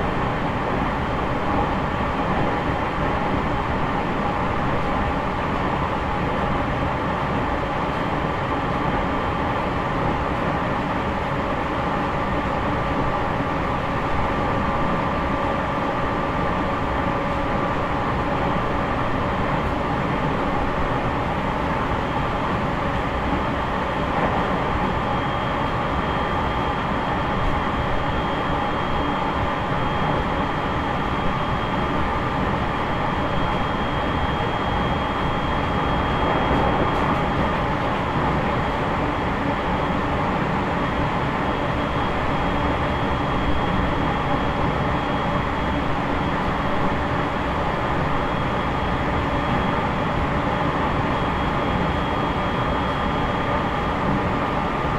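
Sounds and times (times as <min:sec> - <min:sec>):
train wheels rumbling on rails: 0:35.8 - 0:38.5.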